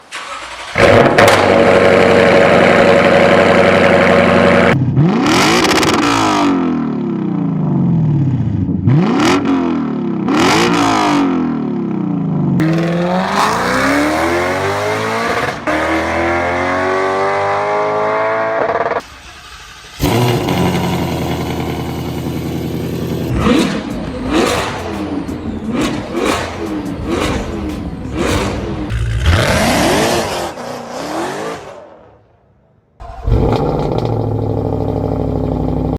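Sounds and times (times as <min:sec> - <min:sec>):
car engines revving: 0:00.1 - 0:32.3, 0:33.0 - 0:35.9
exhaust crackling: 0:18.9 - 0:29.4
car engine idling: 0:19.0 - 0:28.9.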